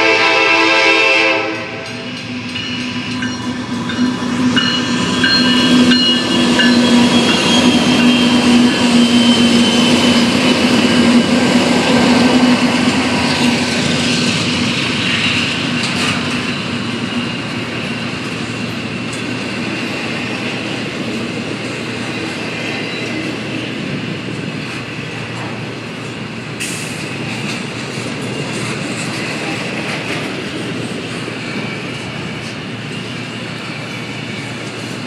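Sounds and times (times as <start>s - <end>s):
freight train wheels rumbling: 0.0s - 35.0s
high wheel squeal: 2.0s - 11.0s, 31.1s - 34.9s.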